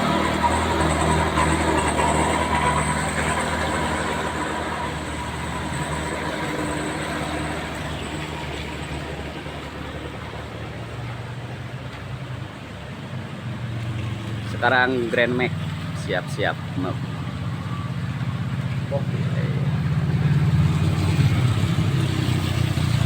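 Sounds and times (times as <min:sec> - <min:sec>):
bus engine labouring: 0:00.0 - 0:23.0.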